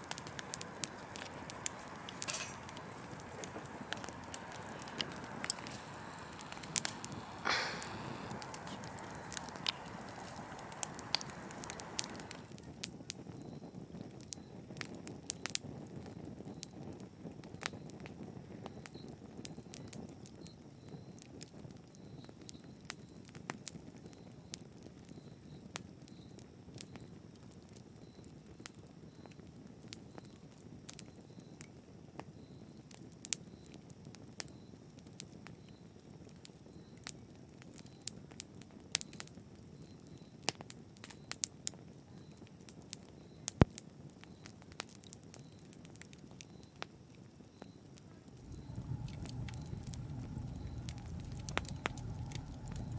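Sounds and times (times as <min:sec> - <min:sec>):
bright hiss: 0:00.0 - 0:12.5, 0:48.4 - 0:52.9
wood fire crackling: 0:00.0 - 0:13.0, 0:48.3 - 0:52.9.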